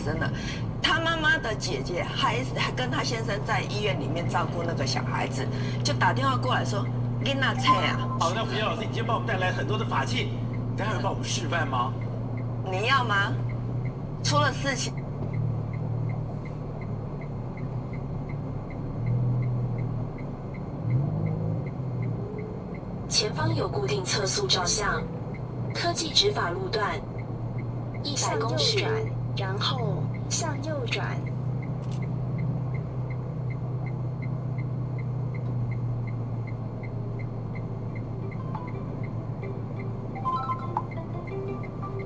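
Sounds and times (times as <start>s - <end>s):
car engine and road drone: 0.0s - 42.0s
faint regular ticking: 11.9s - 23.0s, 25.2s - 28.2s, 30.0s - 42.0s.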